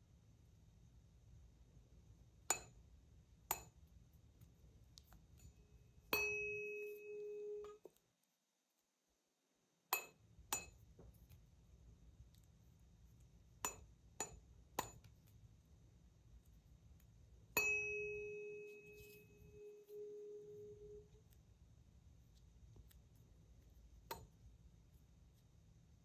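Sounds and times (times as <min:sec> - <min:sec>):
tuning fork ringing: 0:05.4 - 0:07.8, 0:17.6 - 0:21.2.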